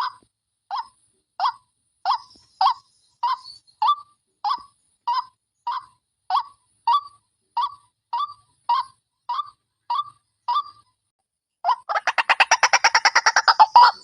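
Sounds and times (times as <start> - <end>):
waterhen call: 11.7 - 14.0.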